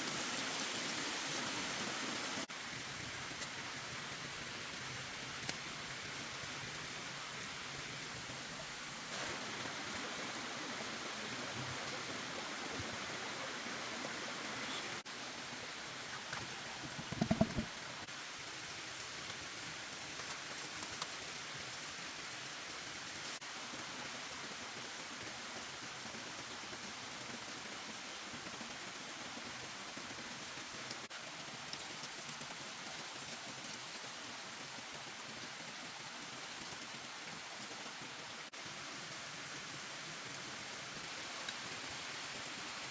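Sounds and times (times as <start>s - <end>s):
rain falling: 0.0s - 42.9s
thumps: 16.8s - 17.8s.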